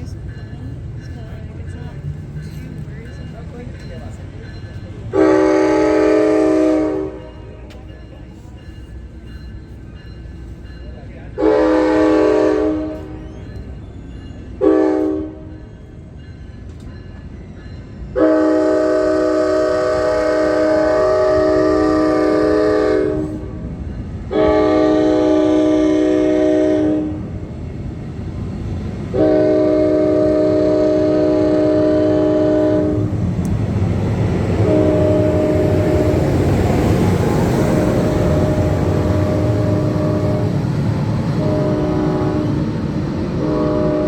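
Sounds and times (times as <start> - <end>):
train rumble: 0.0 - 44.0
locomotive air horn blasts: 5.1 - 7.3, 11.4 - 13.2, 14.6 - 15.5, 18.2 - 23.6, 24.3 - 27.2, 29.1 - 33.1, 34.6 - 36.2, 38.4 - 40.6, 41.4 - 42.8, 43.4 - 44.0.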